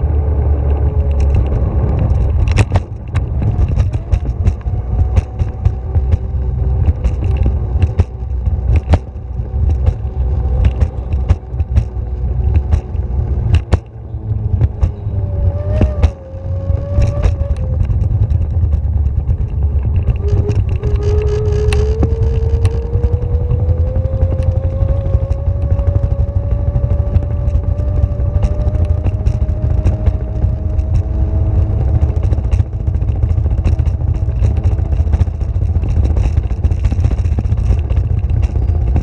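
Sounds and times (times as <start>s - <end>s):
vehicle low rumble: 0.0s - 39.0s
clicks and rattles: 0.6s - 39.0s
motor whine rising in pitch: 8.6s - 35.8s.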